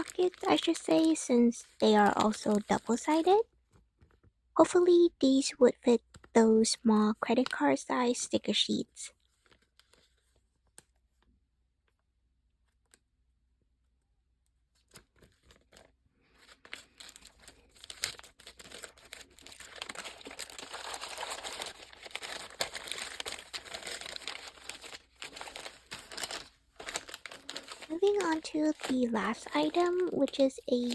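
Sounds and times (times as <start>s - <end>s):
plastic packaging crinkling: 0.0s - 3.4s, 9.2s - 10.9s, 14.9s - 30.9s.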